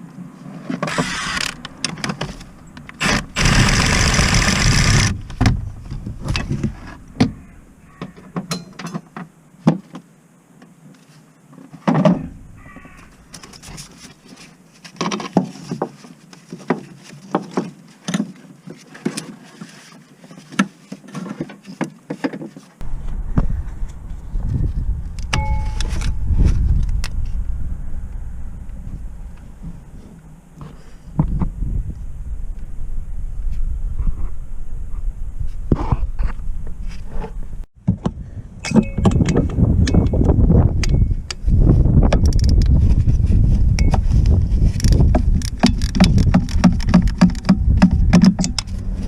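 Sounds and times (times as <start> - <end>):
steady low rumble: 12.3 - 13.7, 22.8 - 38.6, 47.5 - 49.0
sharp clicks and knocks: 43.8 - 48.7.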